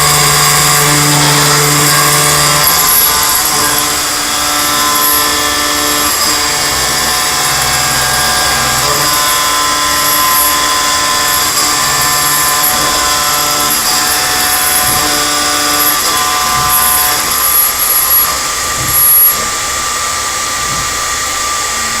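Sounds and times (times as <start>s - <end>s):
high-pitched cutting noise: 0.0s - 22.0s
milling machine spindle whine: 0.0s - 22.0s.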